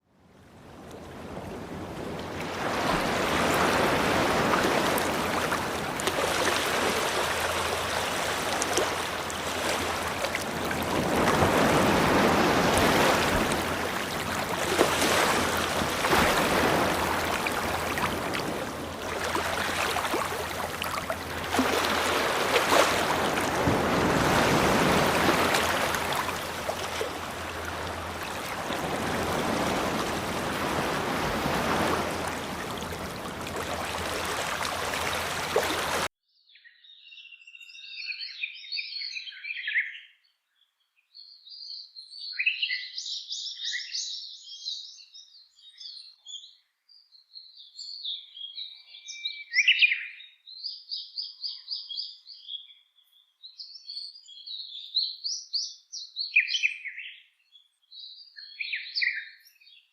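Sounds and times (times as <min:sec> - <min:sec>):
rushing water: 0:00.4 - 0:36.1.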